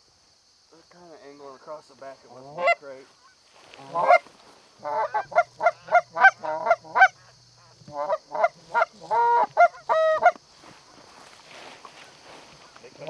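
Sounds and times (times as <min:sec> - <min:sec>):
geese honking and clucking: 0:02.4 - 0:10.4.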